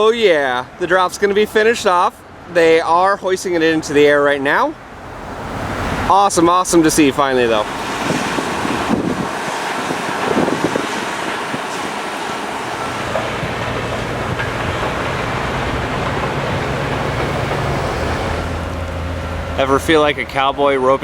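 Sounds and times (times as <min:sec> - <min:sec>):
traffic noise: 0:00.0 - 0:21.0
low engine drone: 0:04.8 - 0:21.0.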